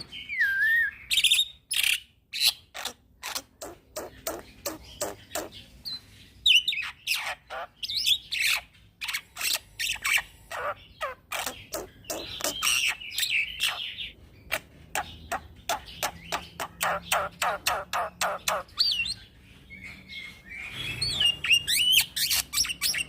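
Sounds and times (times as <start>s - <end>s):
bird whistling: 0.0s - 2.0s
bird singing and chattering: 0.0s - 23.0s.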